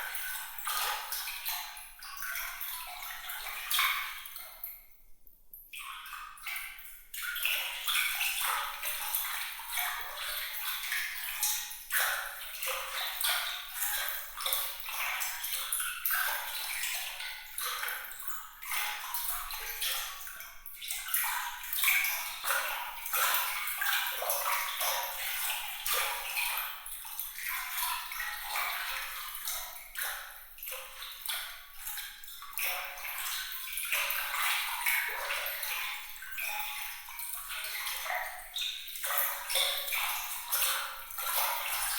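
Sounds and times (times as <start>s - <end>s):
water trickling: 5.7s - 41.9s.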